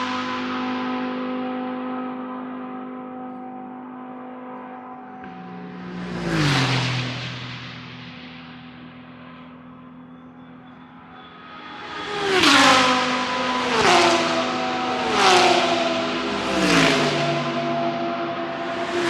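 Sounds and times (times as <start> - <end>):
race cars passing at full throttle: 0.0 - 19.0.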